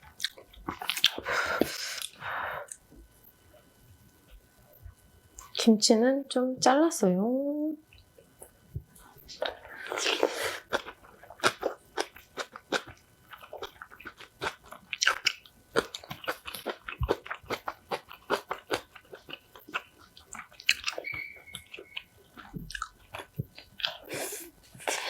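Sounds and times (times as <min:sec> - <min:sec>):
person chewing crunchy food: 0:00.0 - 0:02.9, 0:08.0 - 0:25.0.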